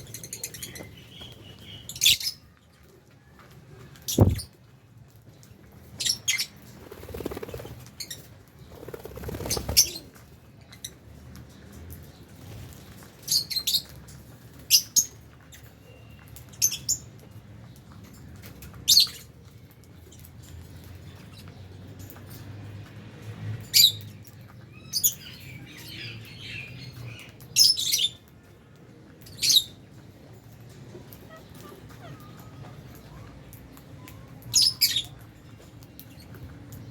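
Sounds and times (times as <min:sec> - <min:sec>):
lovebirds chirping: 0:04.0 - 0:04.6.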